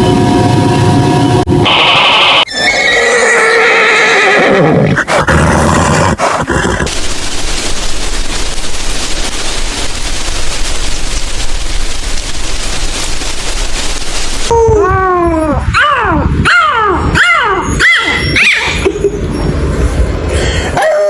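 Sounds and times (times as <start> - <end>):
horse whinnying: 1.7 - 6.9
steady noisy hiss: 6.4 - 14.6.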